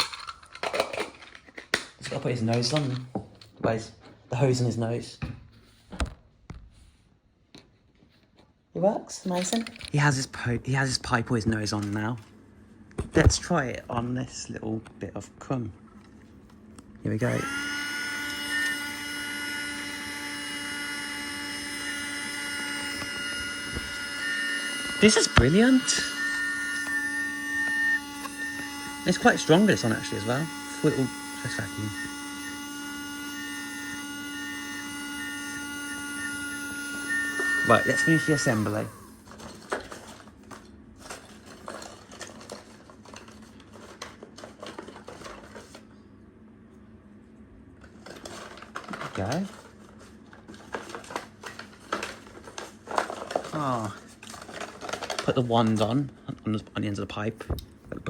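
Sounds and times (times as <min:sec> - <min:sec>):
small vacuum motor whining: 0:16.8 - 0:43.4.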